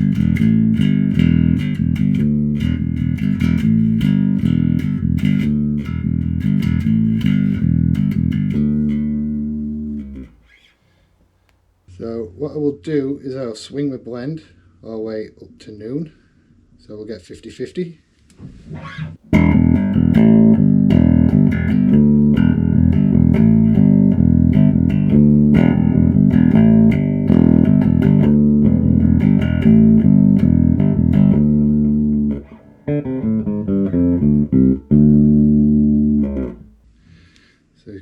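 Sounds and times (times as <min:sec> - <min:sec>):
electric bass riff: 0:00.0 - 0:10.5, 0:19.3 - 0:36.8.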